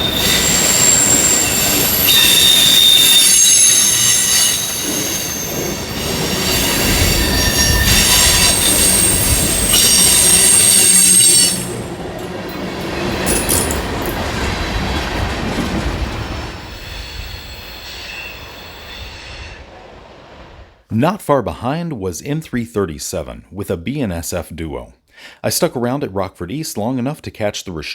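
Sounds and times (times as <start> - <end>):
train wheels squealing on rails: 0.0 - 19.8
freight train cars rumbling: 0.0 - 20.9.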